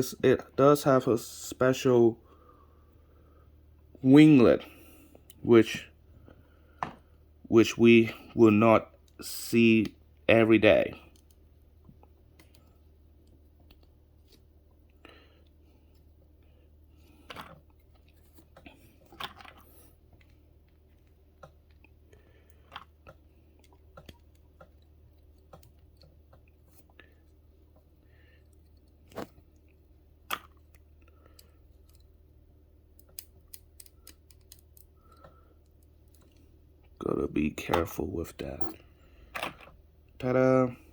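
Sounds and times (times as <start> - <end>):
steady low hum: 0.0 - 40.9
plastic parts clicking: 32.9 - 36.4.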